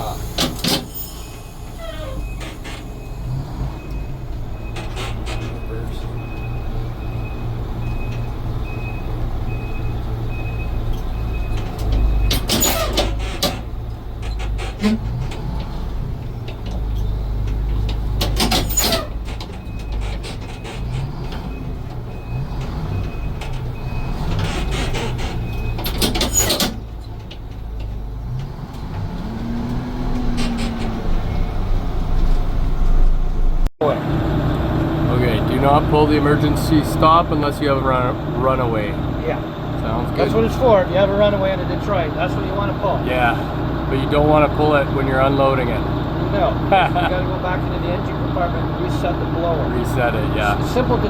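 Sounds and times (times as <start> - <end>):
air brake hisses: 0.0 - 3.4
diesel truck engine running: 0.0 - 51.0
reversing alarm beeping: 0.1 - 12.7, 19.6 - 26.5.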